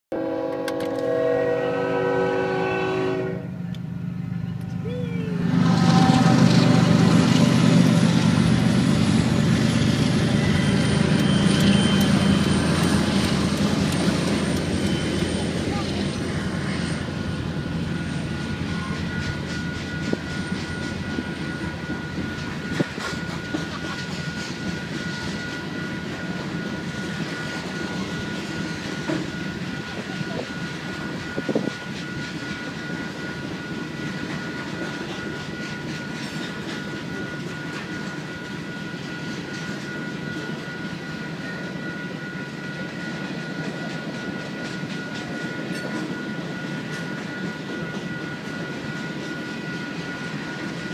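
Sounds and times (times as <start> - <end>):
freight train wheels rumbling: 0.1 - 50.9.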